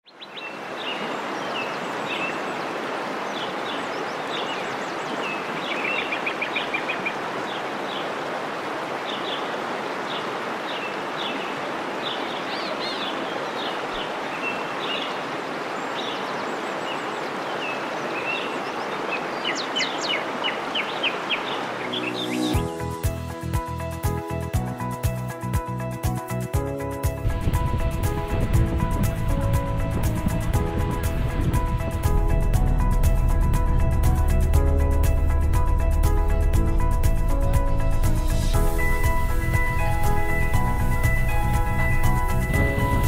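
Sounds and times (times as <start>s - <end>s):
birds chirping: 0.0s - 23.2s, 27.4s - 43.0s
steady rushing noise: 27.1s - 43.0s.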